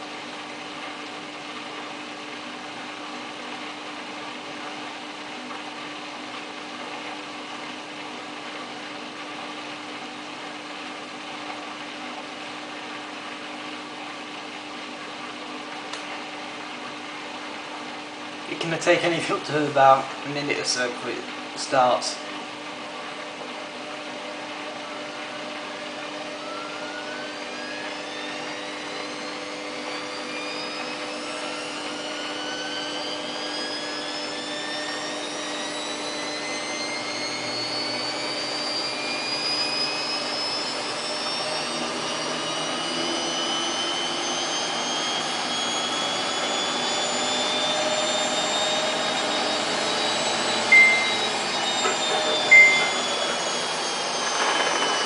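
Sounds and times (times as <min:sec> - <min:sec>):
washing machine drum whine: 0:00.0 - 0:55.0
short high beep: 0:50.7 - 0:53.4.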